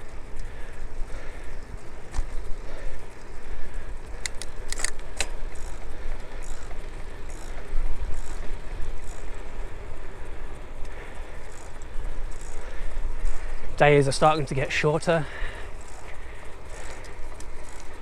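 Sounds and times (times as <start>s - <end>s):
sharp clicks: 4.1s - 9.4s, 15.7s - 18.0s.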